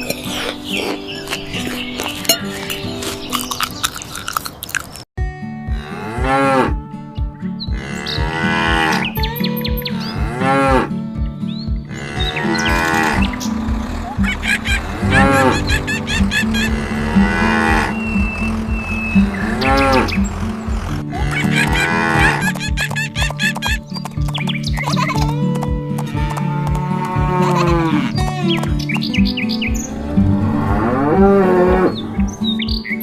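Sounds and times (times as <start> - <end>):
background music with steady beat: 5.2 - 33.0
cartoon cows mooing: 11.9 - 22.7, 26.0 - 28.6, 29.9 - 32.4.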